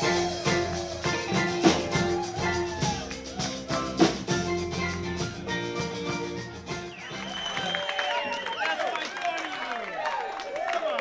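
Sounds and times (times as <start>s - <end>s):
drum hits: 0.0s - 7.0s
bending guitar notes: 0.0s - 7.3s
live band playing: 0.0s - 8.4s.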